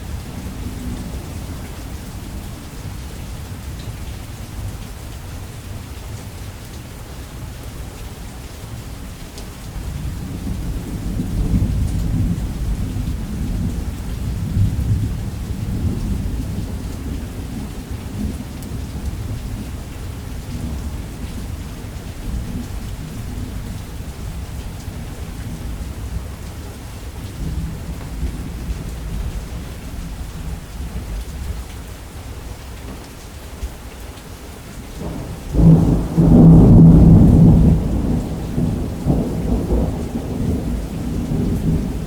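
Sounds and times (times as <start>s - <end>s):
heavy rain: 0.0s - 42.0s
rolling thunder: 35.0s - 42.0s.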